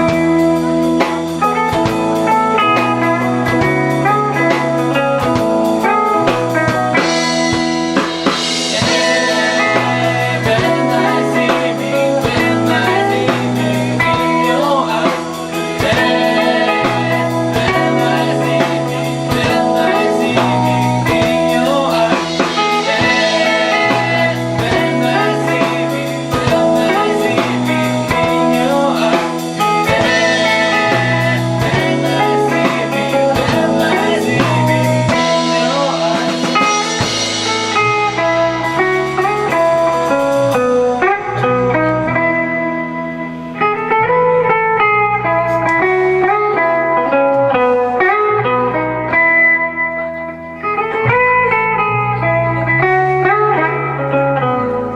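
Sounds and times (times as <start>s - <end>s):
drums and cymbals: 0.0s - 41.4s
bass guitar: 0.0s - 54.9s
electric guitar: 0.0s - 54.9s.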